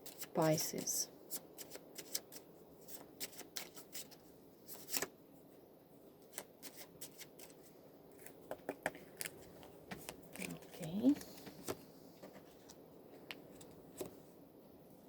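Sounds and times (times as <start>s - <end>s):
cards being shuffled: 1.6s - 5.1s, 6.3s - 12.8s.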